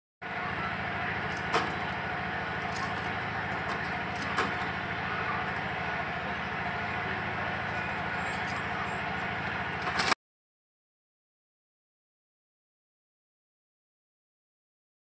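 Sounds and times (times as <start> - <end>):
low pulsing mechanical noise: 0.2 - 10.2.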